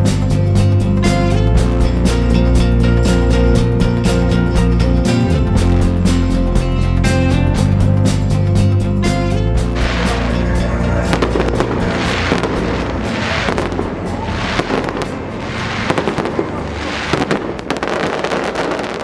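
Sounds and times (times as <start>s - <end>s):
music: 0.0s - 19.0s
fireworks popping and crackling: 11.0s - 19.0s.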